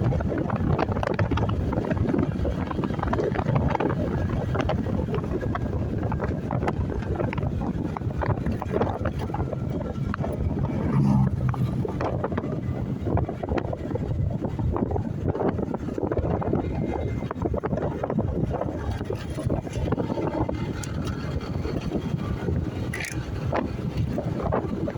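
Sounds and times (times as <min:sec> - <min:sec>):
vehicle noise: 0:00.0 - 0:24.9
wind rumbling on microphone: 0:00.0 - 0:24.9.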